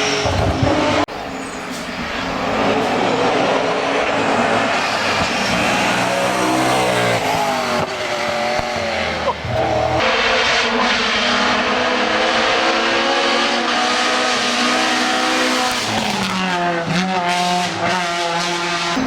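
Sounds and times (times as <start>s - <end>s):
race car engine revving: 0.0s - 19.0s.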